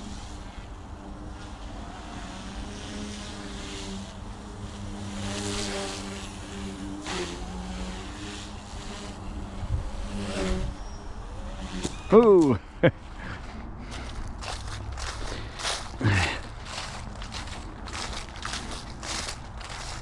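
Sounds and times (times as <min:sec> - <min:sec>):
rc helicopter rotor hum: 0:00.0 - 0:20.0
wind noise on microphone: 0:09.3 - 0:12.1.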